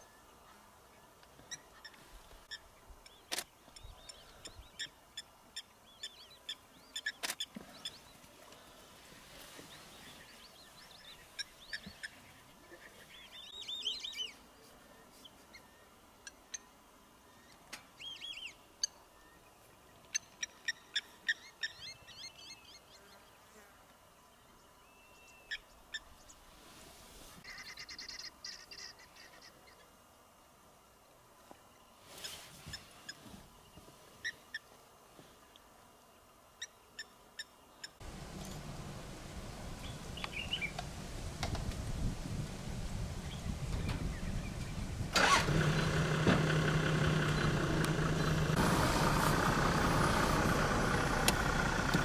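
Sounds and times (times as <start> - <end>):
birds chirping and trilling: 36.6 - 40.9, 43.2 - 48.6.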